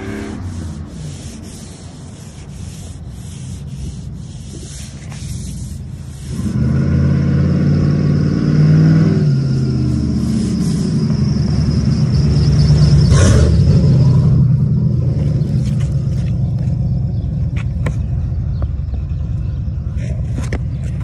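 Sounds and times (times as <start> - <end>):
truck engine revving: 0.0 - 4.6, 5.2 - 17.2.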